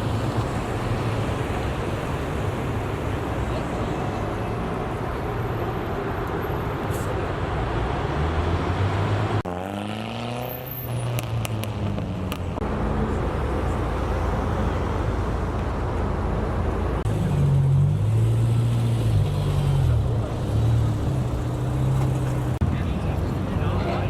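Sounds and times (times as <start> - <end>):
car engines running: 11.0 - 24.0.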